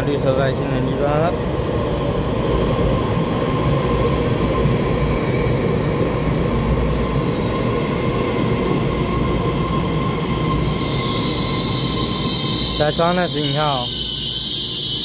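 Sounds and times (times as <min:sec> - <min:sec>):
train wheels rumbling on rail: 0:00.0 - 0:15.0
thin steady whine: 0:09.7 - 0:15.0.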